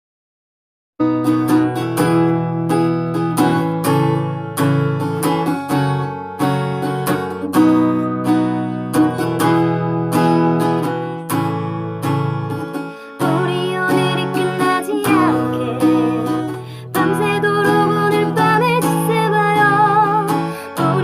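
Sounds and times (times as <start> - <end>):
acoustic guitar strumming: 1.0 - 21.0.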